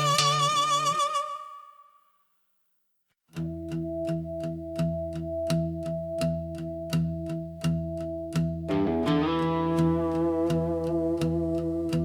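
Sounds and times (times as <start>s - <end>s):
bass notes: 3.4s - 12.0s
electric guitar chords: 3.4s - 12.0s.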